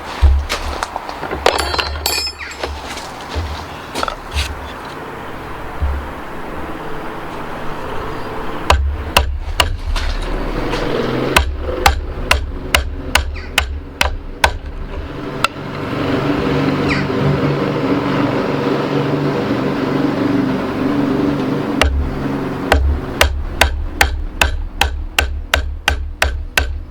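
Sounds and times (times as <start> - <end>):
steady hum: 3.3 - 26.9
hammer striking wood chisel: 8.7 - 14.8, 15.4 - 15.8, 21.8 - 22.1, 22.7 - 26.9.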